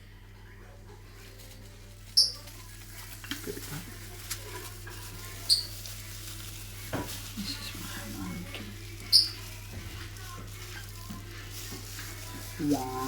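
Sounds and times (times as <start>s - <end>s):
baby birds squeaking: 2.1s - 2.6s, 5.0s - 11.4s.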